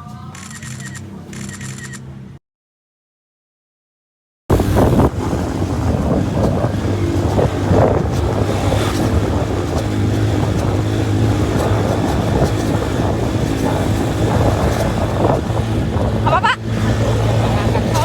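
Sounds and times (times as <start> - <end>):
motorcycle engine running: 4.5 - 18.0
wind buffeting microphone: 4.5 - 18.0.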